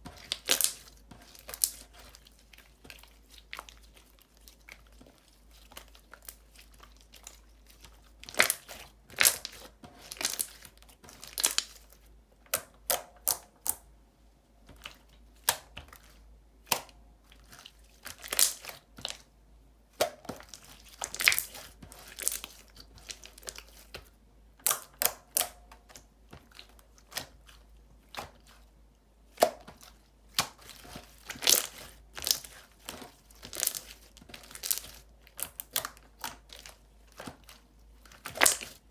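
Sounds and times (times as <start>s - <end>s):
hands squishing slime: 0.0s - 13.9s, 14.6s - 19.3s, 19.9s - 38.9s.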